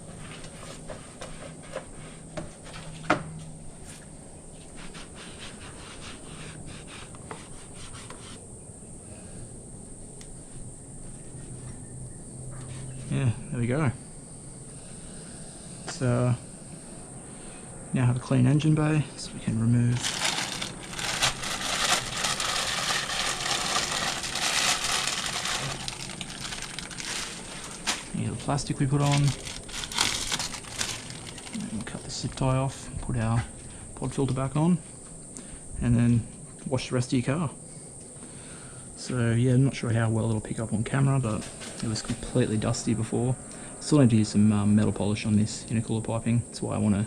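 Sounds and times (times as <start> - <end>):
plastic bag crinkling: 19.9 - 31.9
towel rubbing plastic trim: 20.0 - 28.2.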